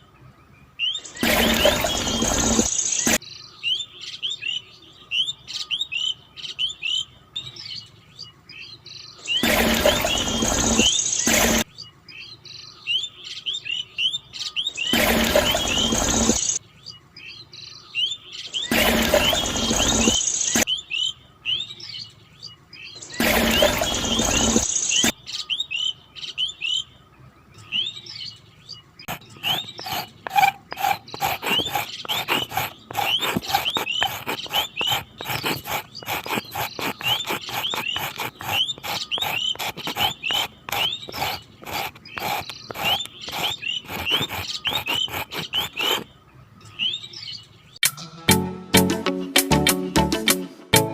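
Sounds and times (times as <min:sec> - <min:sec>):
small birds chirping: 0:00.0 - 0:47.8.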